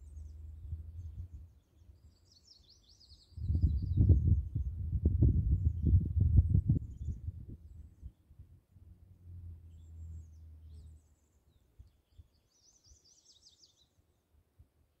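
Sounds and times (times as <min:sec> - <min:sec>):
low rumble: 0:00.0 - 0:02.2, 0:03.2 - 0:11.3
bird chirping: 0:00.0 - 0:08.5, 0:09.1 - 0:14.3.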